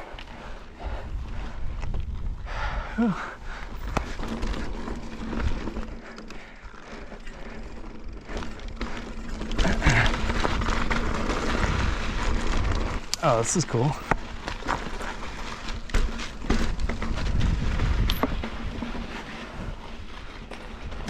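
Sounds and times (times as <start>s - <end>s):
bike tyres rolling on rock: 0.0s - 21.0s
wind rushing over microphone: 0.8s - 4.6s, 16.6s - 18.9s
bike knocks and rattles: 3.7s - 13.1s, 13.9s - 21.0s.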